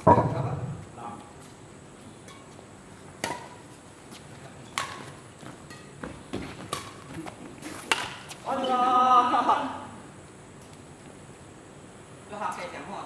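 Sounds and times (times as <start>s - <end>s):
racket hitting shuttlecock: 3.2s - 3.7s, 4.7s - 8.8s.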